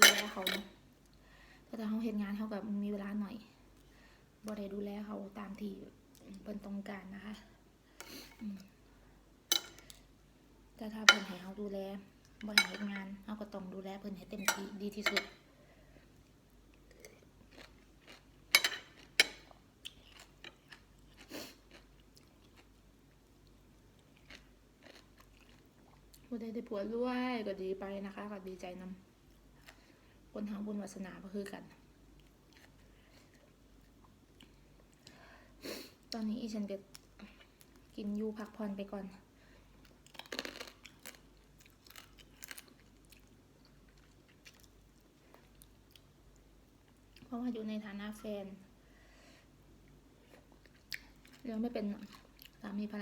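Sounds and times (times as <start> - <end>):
person chewing food: 16.7 - 18.4, 19.0 - 26.2, 39.8 - 47.3.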